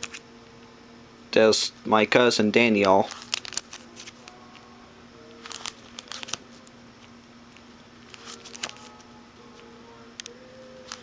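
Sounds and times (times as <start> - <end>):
faint steady hum: 0.0 - 11.0
light crinkling: 2.8 - 4.7, 5.3 - 6.7, 7.5 - 11.0.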